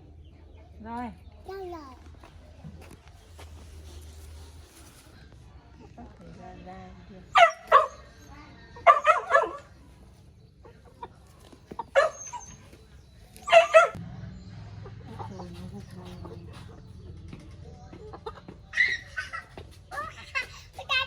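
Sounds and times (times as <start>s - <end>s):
low steady hum: 13.1s - 20.9s
chickens squawking and clucking: 18.0s - 20.6s.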